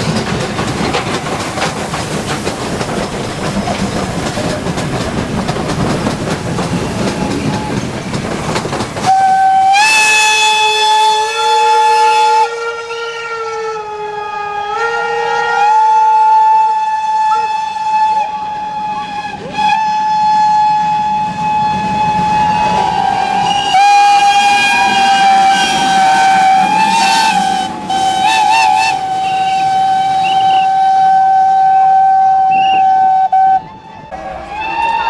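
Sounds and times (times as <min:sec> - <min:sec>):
rumble of passing train: 0:00.0 - 0:35.0
steam locomotive whistle: 0:09.0 - 0:35.0.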